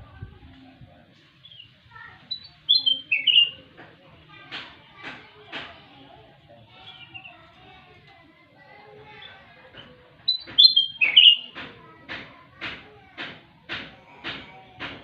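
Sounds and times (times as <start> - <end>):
songbird singing: 1.4 - 3.8, 6.6 - 7.6, 10.2 - 11.7
bird whistled notes: 2.3 - 3.6, 10.3 - 11.5.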